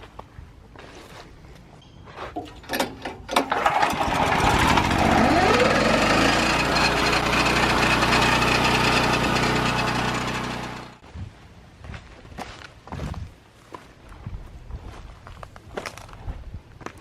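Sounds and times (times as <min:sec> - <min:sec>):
small petrol engine running: 0:03.5 - 0:11.0.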